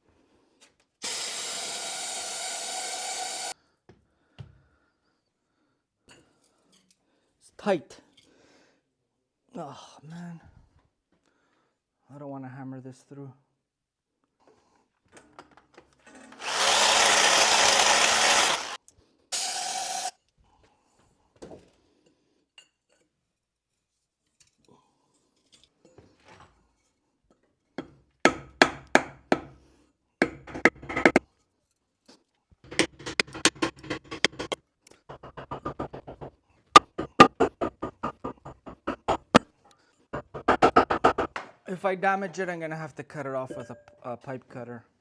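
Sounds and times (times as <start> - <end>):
power tool running: 1.0 - 3.5, 16.4 - 18.8, 19.4 - 20.1, 30.6 - 31.2, 32.7 - 39.4, 40.2 - 41.3.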